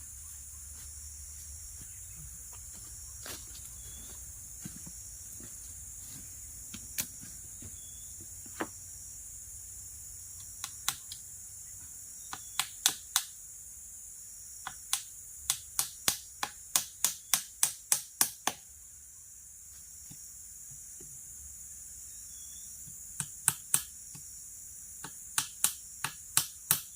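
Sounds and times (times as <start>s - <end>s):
high insect chorus: 0.0s - 26.9s.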